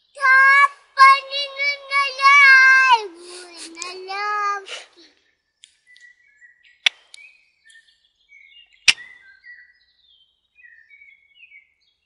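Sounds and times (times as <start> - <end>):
birds chirping and warbling: 0.0 - 12.0.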